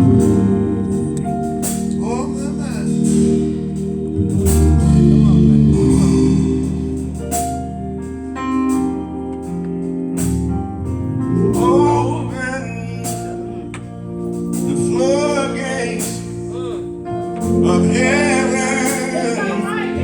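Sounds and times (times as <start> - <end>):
bass: 0.0 - 20.0
sustained keyboard chords: 0.0 - 20.0
person singing: 17.4 - 20.0.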